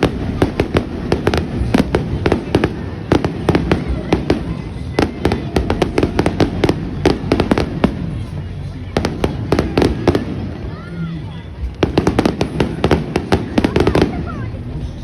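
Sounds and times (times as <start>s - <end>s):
low rumble: 0.0s - 10.7s
fireworks cracks and bangs: 0.0s - 14.7s.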